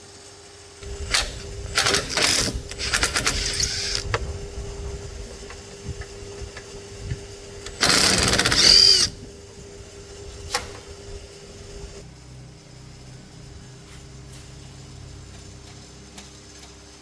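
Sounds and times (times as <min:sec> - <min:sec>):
power tool burst: 0:00.8 - 0:04.1, 0:07.6 - 0:09.2
faint steady hum: 0:00.8 - 0:15.9.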